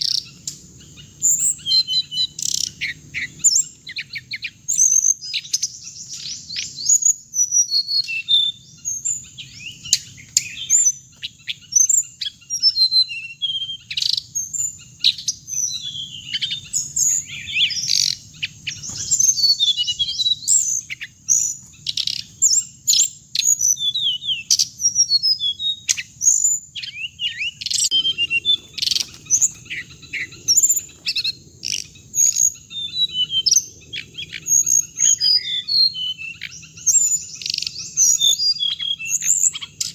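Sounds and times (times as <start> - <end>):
bird singing rapid chirps: 0.0 - 39.9.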